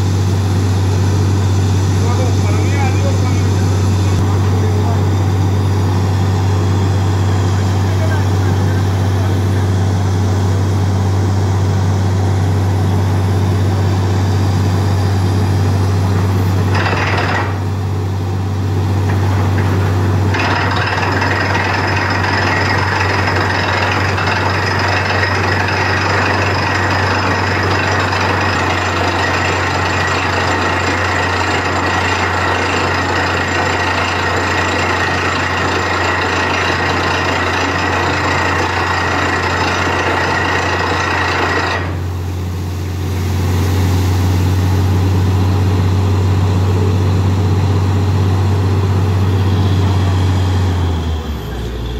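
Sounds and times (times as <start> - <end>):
deep engine hum: 0.0 - 16.8, 41.8 - 51.9
drilling rig running: 0.0 - 51.9.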